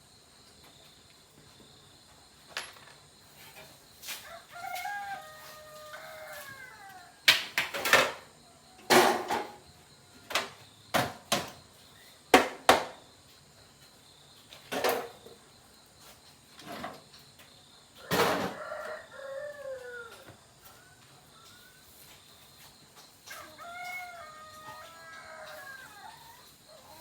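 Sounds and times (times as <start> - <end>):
rooster crowing: 4.0 - 7.3, 18.0 - 22.1, 23.2 - 27.0.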